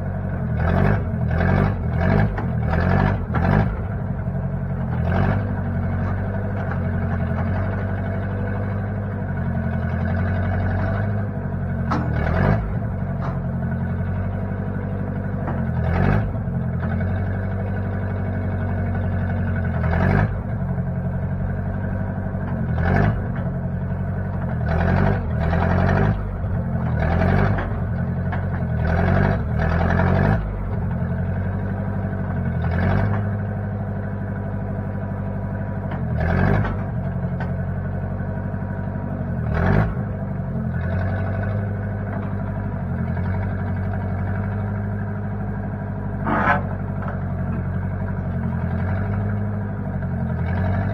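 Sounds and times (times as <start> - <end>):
backhoe engine running: 0.0 - 50.9.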